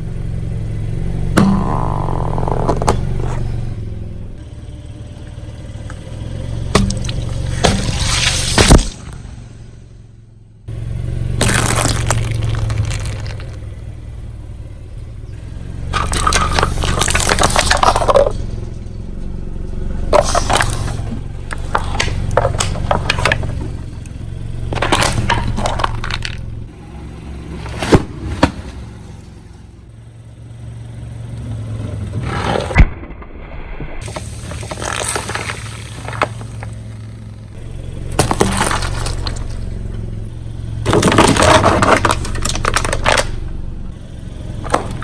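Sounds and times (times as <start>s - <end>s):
car engine hum: 0.0s - 45.0s
tyre crushing crunchy objects: 1.2s - 4.4s, 5.9s - 9.4s, 10.7s - 14.4s, 15.4s - 18.5s, 20.1s - 26.7s, 27.4s - 29.6s, 34.0s - 45.0s
sharp loud cracks: 6.8s - 9.5s, 11.3s - 14.0s.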